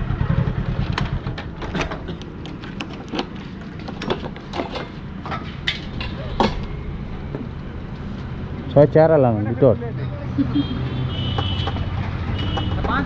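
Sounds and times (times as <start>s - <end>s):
motorcycle engine running: 0.0s - 3.7s.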